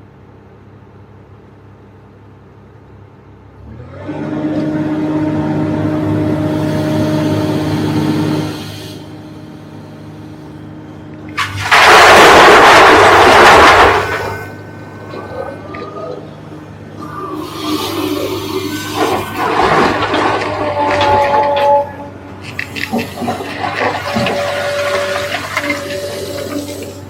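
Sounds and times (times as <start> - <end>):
excavator diesel engine revving: 3.5 - 27.0
loud rough rushing noise: 11.4 - 15.7, 16.3 - 27.0.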